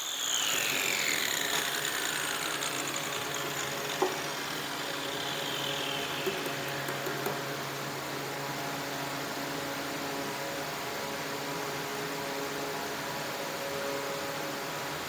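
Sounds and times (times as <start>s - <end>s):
motor running with hum: 0.0s - 10.4s.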